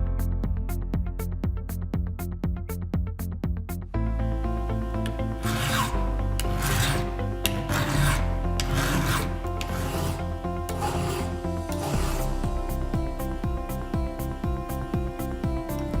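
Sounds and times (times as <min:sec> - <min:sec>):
file rasping on chainsaw chain: 0:05.4 - 0:12.4.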